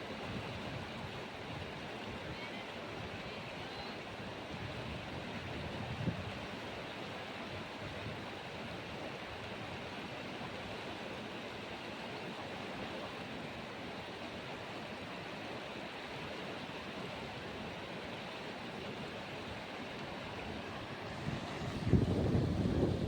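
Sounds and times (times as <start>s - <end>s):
rushing whitewater roar: 6.3s - 23.0s.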